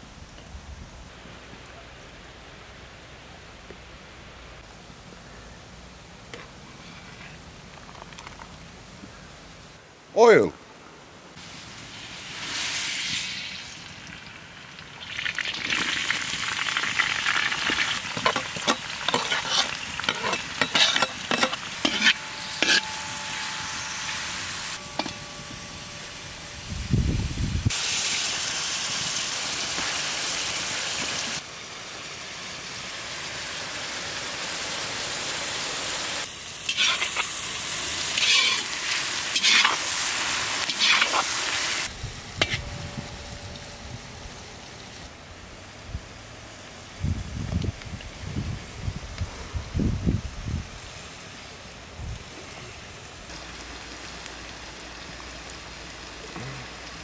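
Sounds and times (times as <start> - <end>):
onions sizzling in hot oil: 11.4 - 42.8, 45.6 - 57.0
metal spoon scraping a pot: 18.2 - 25.2, 36.7 - 37.3, 38.2 - 38.7, 39.4 - 39.8, 40.7 - 41.2, 42.4 - 42.7.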